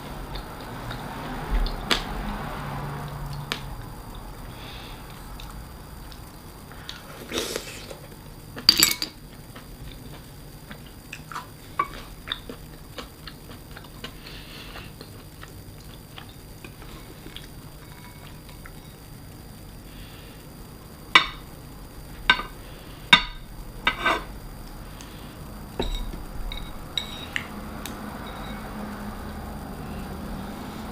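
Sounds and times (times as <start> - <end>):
utensil clinking against dish: 8.7 - 9.2, 25.8 - 27.5
soft chewing: 9.3 - 18.9.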